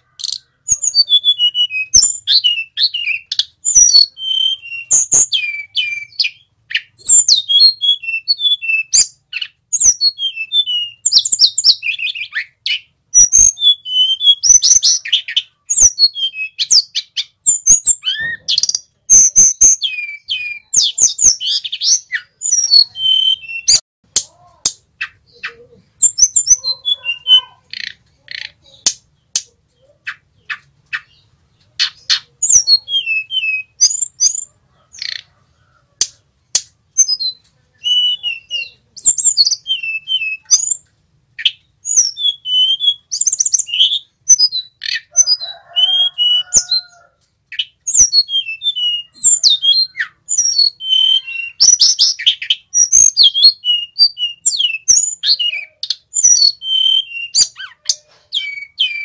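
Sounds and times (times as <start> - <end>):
bird singing: 0.0 - 59.0.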